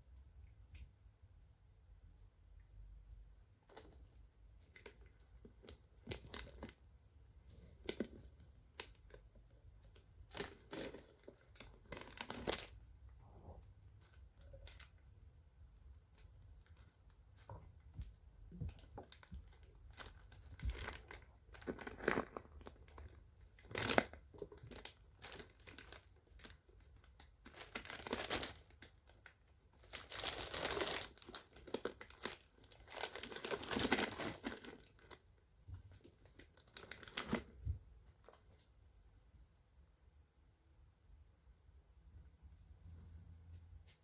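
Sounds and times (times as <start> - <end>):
material crinkling and rustling: 3.6 - 15.2, 16.0 - 38.7.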